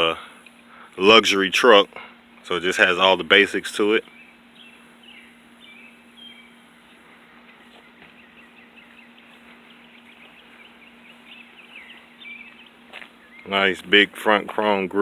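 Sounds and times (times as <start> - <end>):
songbirds chirping: 0.0 - 15.0
steady low hum: 0.0 - 15.0.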